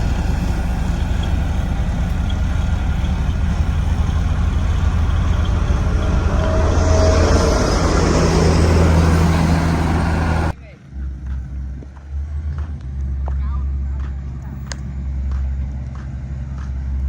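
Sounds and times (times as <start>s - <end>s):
road roller diesel engine running: 0.0s - 12.4s.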